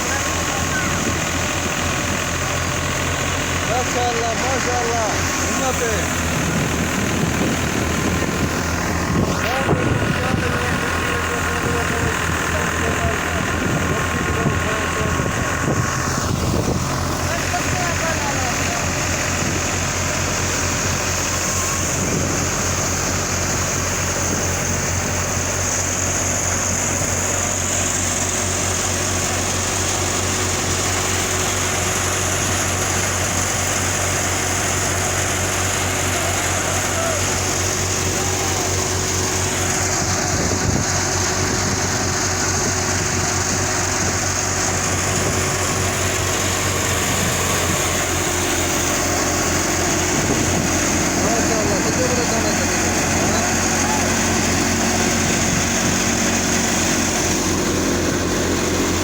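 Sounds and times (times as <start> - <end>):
thresher high whine: 0.0 - 59.0
tractor engine running: 0.0 - 59.0.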